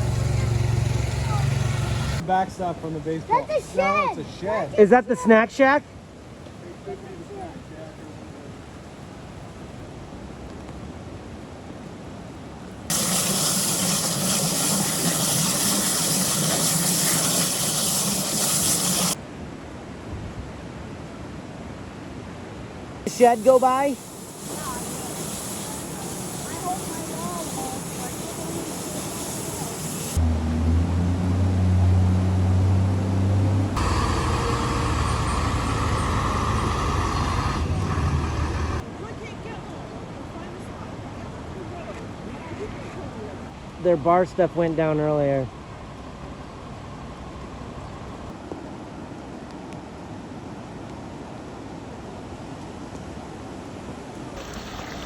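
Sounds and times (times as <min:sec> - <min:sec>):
vehicle engine humming: 0:00.0 - 0:02.2, 0:23.1 - 0:38.8
rushing floodwater: 0:00.0 - 0:17.6, 0:18.8 - 0:33.1, 0:48.4 - 0:55.0.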